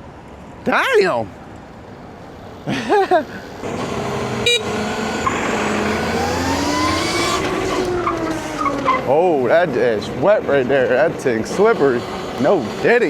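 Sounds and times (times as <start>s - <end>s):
road and wind noise: 0.0s - 13.0s
electric motor whining: 3.6s - 8.9s.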